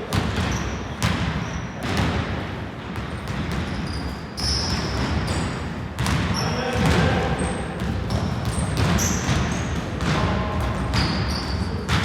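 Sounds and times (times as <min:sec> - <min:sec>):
sneakers squeaking: 0:00.1 - 0:02.0, 0:03.0 - 0:12.0
basketball bouncing on hardwood: 0:06.0 - 0:07.0, 0:07.8 - 0:12.0.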